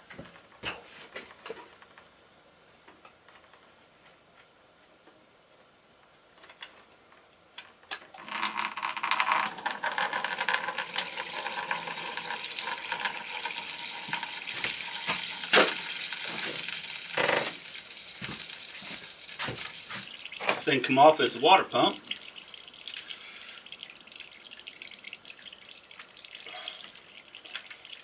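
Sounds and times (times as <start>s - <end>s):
coolant splashing into drain pan: 8.2s - 28.0s.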